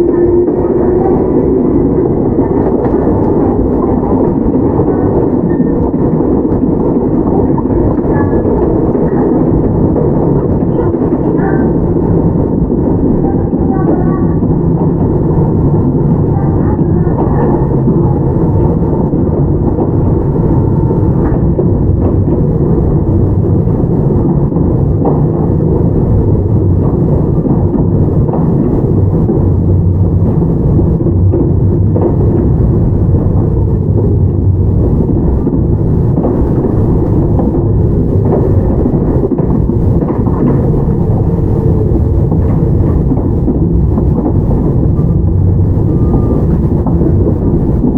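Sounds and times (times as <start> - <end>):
train wheels rumbling on track: 0.0 - 47.9.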